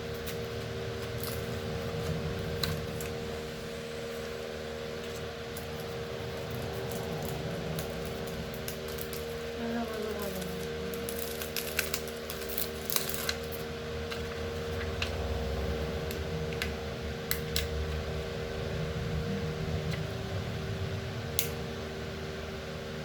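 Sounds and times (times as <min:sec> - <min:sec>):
electric fan humming: 0:00.0 - 0:23.0.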